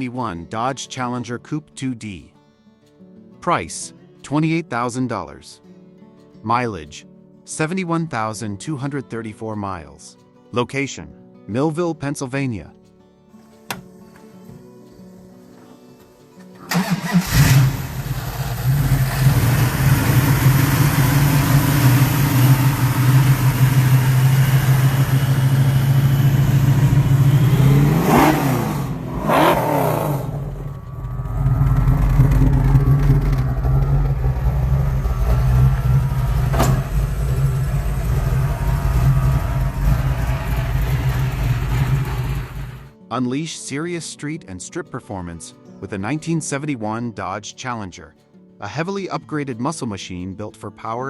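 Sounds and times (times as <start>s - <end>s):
car engine idling and revving: 16.7s - 42.9s.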